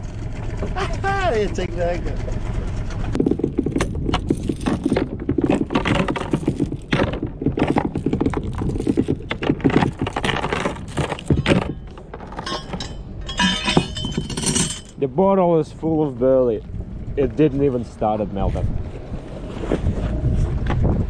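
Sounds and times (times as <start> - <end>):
metallic rattling and clinking: 3.2 - 15.0.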